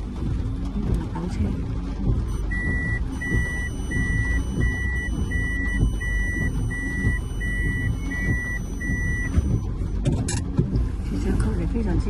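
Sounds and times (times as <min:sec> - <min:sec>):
road traffic rumble: 0:00.0 - 0:12.0
vehicle warning beeps: 0:02.2 - 0:10.0.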